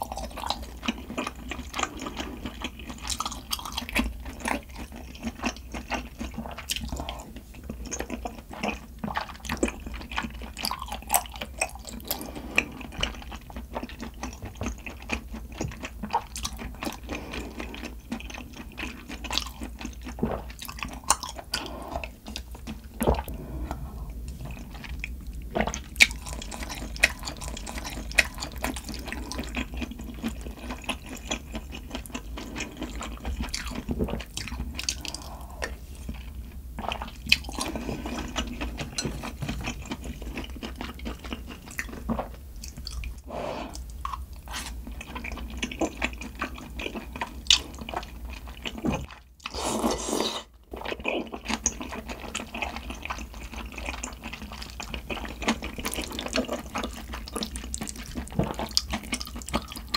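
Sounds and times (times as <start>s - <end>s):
wet chewing and slurping: 0.0s - 59.9s.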